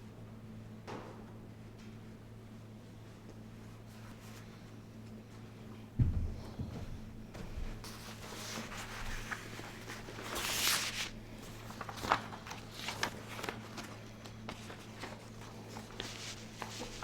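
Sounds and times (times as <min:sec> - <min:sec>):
steady low hum: 0:00.0 - 0:17.0
footsteps: 0:06.0 - 0:09.5.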